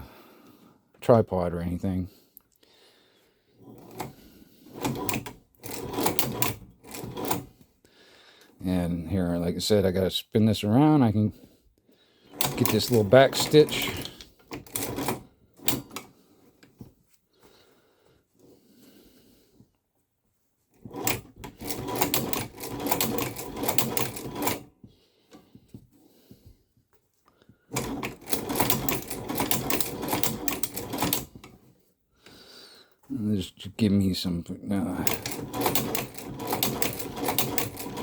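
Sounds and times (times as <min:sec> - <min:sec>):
sewing machine needle clatter: 0:03.6 - 0:07.6, 0:12.3 - 0:16.1, 0:20.8 - 0:24.7, 0:27.7 - 0:31.7, 0:34.9 - 0:38.0.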